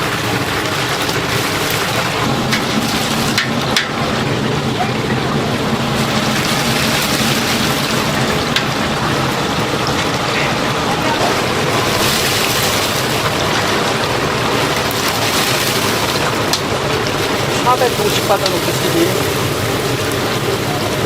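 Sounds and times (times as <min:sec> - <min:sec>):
chicken deep-frying in oil: 0:00.0 - 0:21.0.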